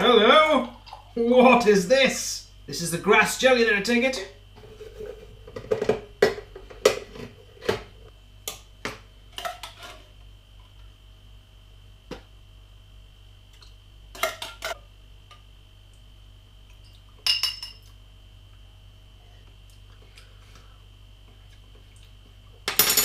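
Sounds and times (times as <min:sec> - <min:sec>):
clinks of a can or glass: 0:17.2 - 0:17.8.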